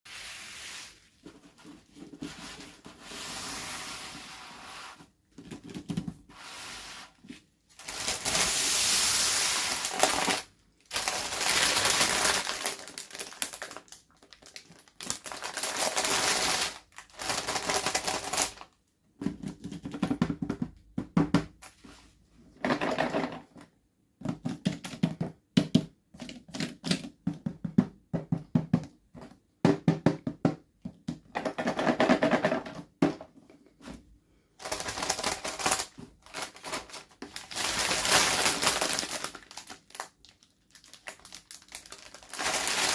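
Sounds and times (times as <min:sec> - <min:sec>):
plastic packaging crinkling: 0:07.8 - 0:18.7, 0:34.6 - 0:42.9.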